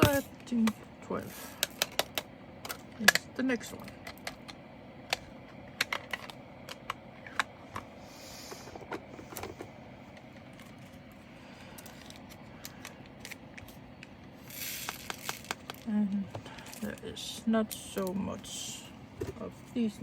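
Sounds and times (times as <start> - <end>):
plastic containers clicking: 14.8 - 15.9.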